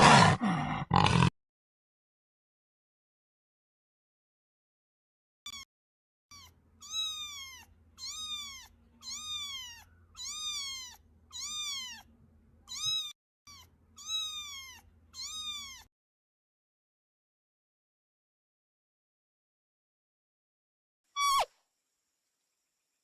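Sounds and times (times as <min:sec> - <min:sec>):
cat meowing: 0:06.3 - 0:15.9, 0:21.2 - 0:21.5.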